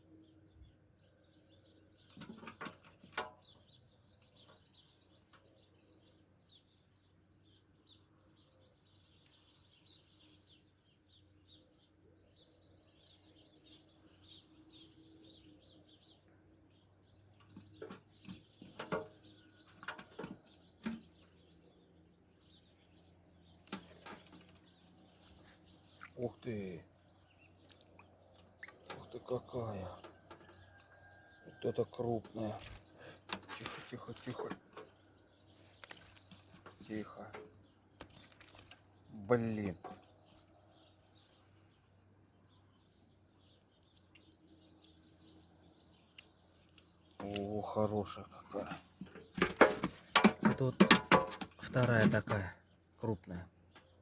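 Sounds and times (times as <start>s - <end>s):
faint birdsong chirps: 0.0s - 54.0s.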